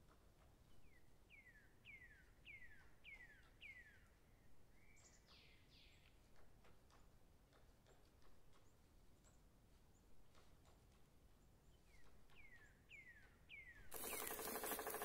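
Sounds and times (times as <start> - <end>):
faint songbird whistling: 11.9 - 15.0.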